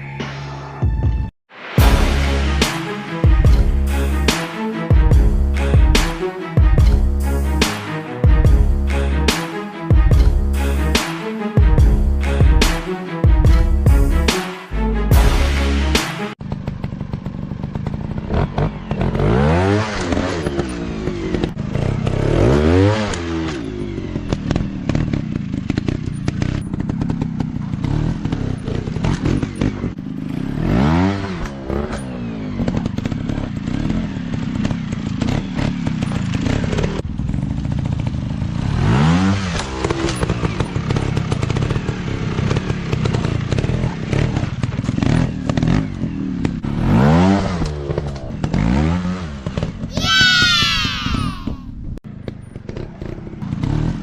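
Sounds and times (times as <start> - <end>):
dirt bike engine revving: 15.1 - 51.5, 52.6 - 54.0.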